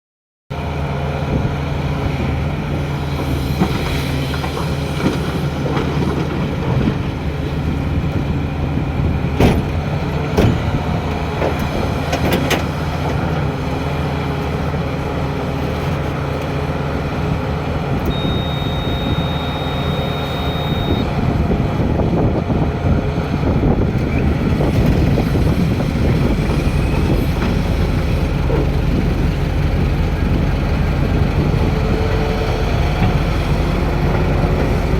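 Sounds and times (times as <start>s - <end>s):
excavator diesel engine running: 0.6s - 34.9s
steady high beep: 18.1s - 21.1s.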